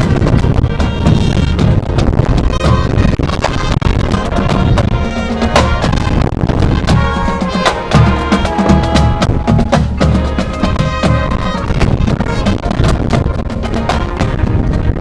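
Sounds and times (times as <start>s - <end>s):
drum line: 0.0s - 14.8s
marching band playing chords: 2.6s - 14.6s.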